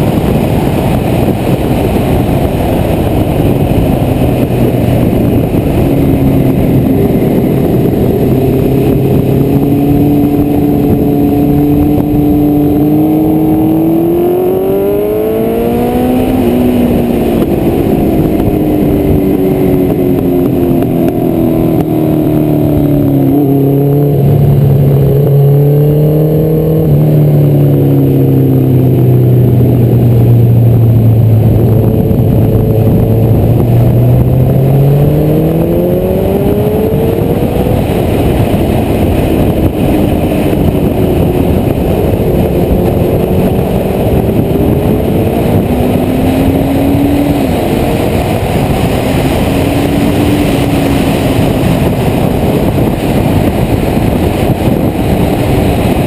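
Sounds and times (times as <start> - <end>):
motorcycle engine revving: 0.0 - 56.0
wind rush on microphone: 0.0 - 56.0.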